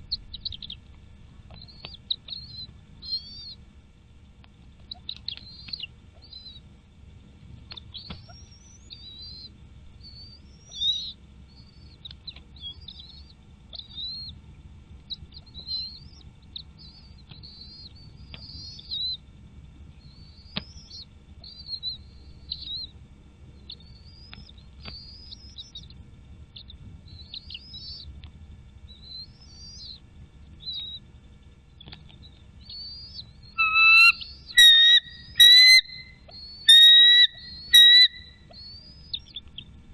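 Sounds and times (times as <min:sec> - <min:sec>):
faint low rumble: 0:00.0 - 0:39.9
bird chirping: 0:32.2 - 0:39.4
lower bird call: 0:32.2 - 0:39.6.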